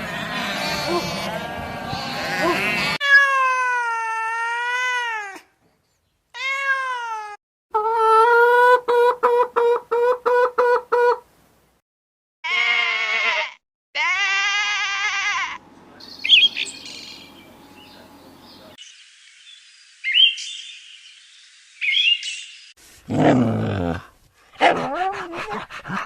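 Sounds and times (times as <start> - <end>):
animal call: 0.0 - 3.3
cat meowing: 12.5 - 15.6.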